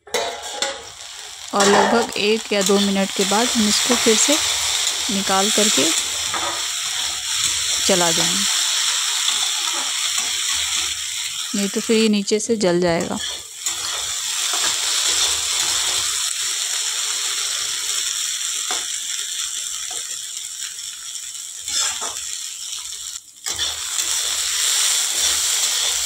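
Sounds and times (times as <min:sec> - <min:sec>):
vegetables sizzling in a pan: 0:00.0 - 0:26.0
metal spatula scraping pan: 0:00.1 - 0:00.9, 0:01.6 - 0:02.8, 0:23.5 - 0:23.8.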